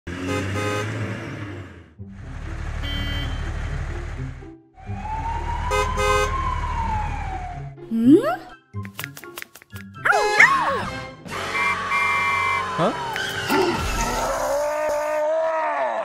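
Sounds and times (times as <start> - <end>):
truck horn beeps: 0.1 - 1.2, 2.8 - 3.8, 5.7 - 6.4, 11.3 - 13.0
truck engine rumble: 0.1 - 5.6
fire engine siren wail: 4.8 - 7.8, 10.2 - 13.1.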